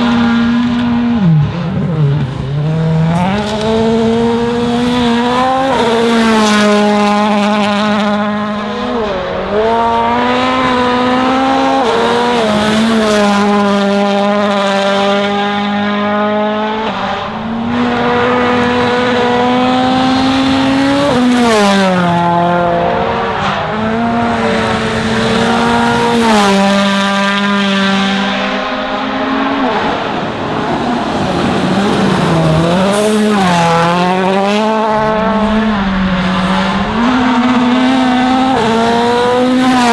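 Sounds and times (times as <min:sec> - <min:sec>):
rally car engine revving hard: 0:00.0 - 0:39.9.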